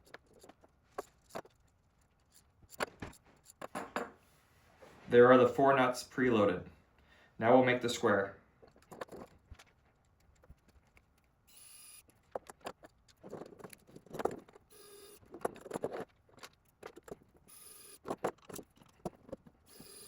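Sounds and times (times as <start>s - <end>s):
plastic parts clicking and knocking: 0.0s - 4.2s, 8.6s - 20.0s
short rasping bursts: 14.7s - 15.2s.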